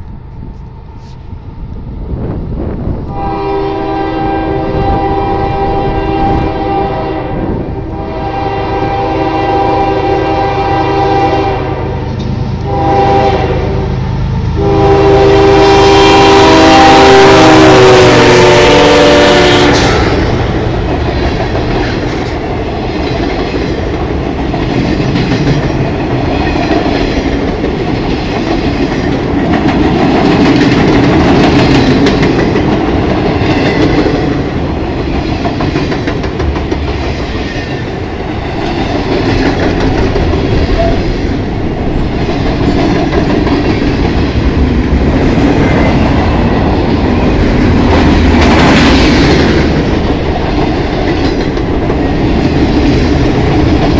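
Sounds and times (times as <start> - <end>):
locomotive horn: 3.1 - 20.3
freight train wheels clattering: 19.1 - 53.9.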